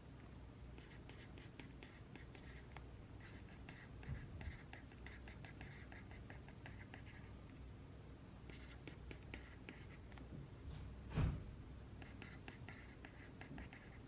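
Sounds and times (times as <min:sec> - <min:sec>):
pen scratching on paper: 0:00.8 - 0:02.6, 0:03.2 - 0:07.2, 0:08.5 - 0:10.0, 0:12.0 - 0:14.0
soft low thump: 0:10.7 - 0:11.5.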